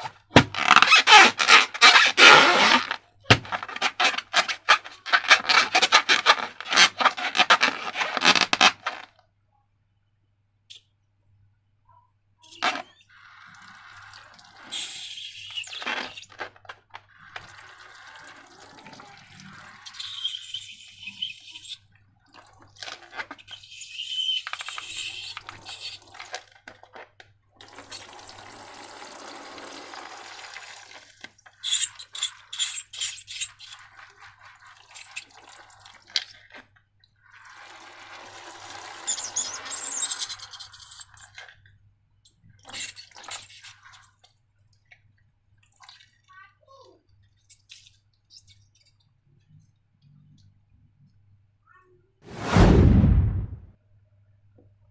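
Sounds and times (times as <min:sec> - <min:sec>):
liquid slime pouring: 0:12.7 - 0:20.6, 0:33.9 - 0:36.2.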